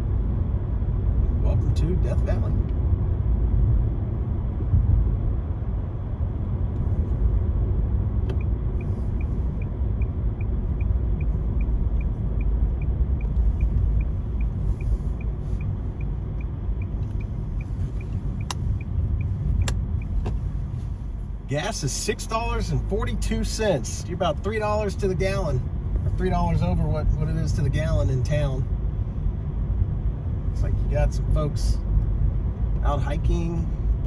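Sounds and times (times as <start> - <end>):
car driving rumble inside cabin: 0.0 - 34.0
faint regular ticking: 8.3 - 20.4.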